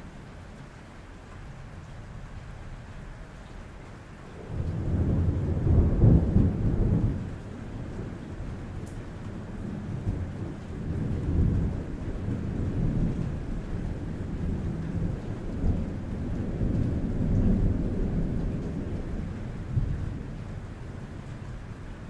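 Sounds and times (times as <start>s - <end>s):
rain falling on a roof: 0.0s - 22.0s
rolling thunder: 4.4s - 21.7s.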